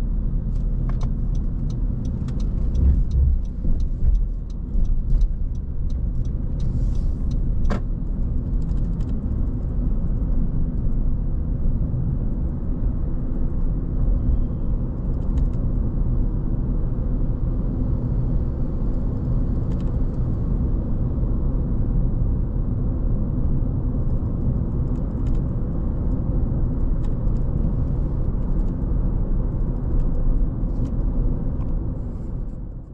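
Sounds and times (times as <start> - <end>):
car engine and road noise: 0.0 - 32.9
faint clicks and ticks: 0.6 - 7.8.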